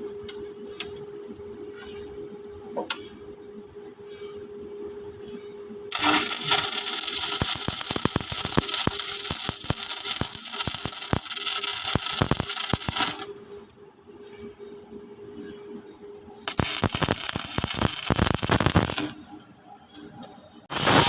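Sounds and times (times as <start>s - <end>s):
steady hum: 0.0s - 21.0s
welding arc crackling: 5.9s - 13.4s, 16.5s - 19.4s, 20.7s - 21.0s.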